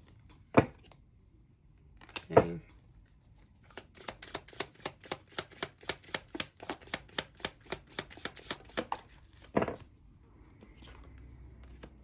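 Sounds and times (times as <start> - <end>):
cards being shuffled: 3.4 - 9.8.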